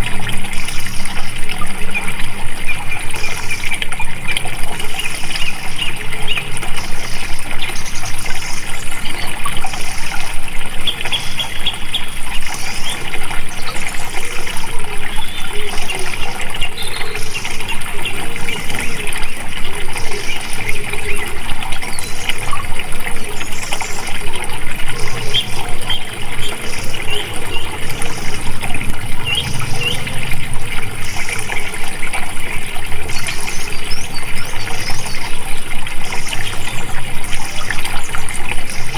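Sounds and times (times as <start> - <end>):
water flowing and trickling: 0.0 - 38.9
bird chirps: 24.9 - 32.0.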